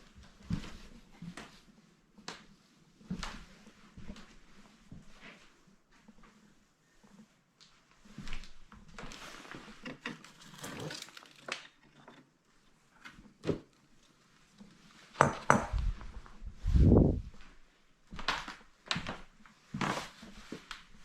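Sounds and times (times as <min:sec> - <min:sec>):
household objects clattering: 0:09.8 - 0:12.4.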